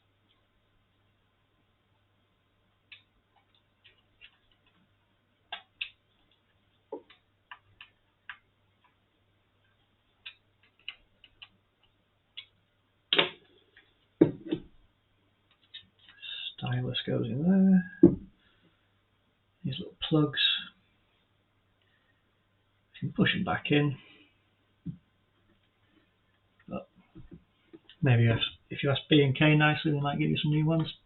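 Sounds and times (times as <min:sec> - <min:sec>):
small tools and plastic parts clicking: 0:10.2 - 0:12.5.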